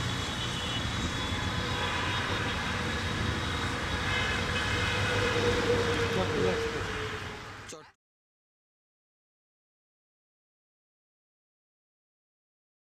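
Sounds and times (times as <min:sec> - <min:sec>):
train wheels rumbling on rail: 0:00.9 - 0:07.6.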